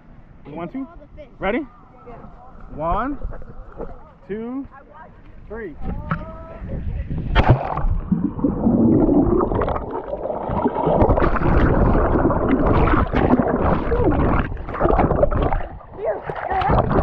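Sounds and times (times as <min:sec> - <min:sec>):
underwater bubbling and gurgling: 0:07.1 - 0:17.0.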